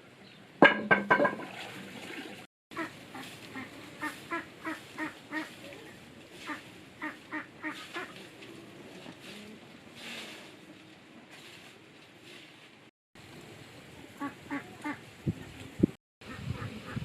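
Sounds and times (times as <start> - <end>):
ducks quacking: 2.7 - 5.6, 6.4 - 8.3, 14.2 - 15.0, 16.2 - 17.0.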